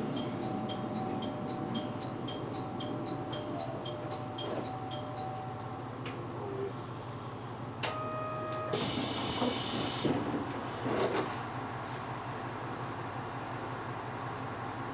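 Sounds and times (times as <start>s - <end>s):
compressed air hiss of train doors: 8.7s - 10.2s.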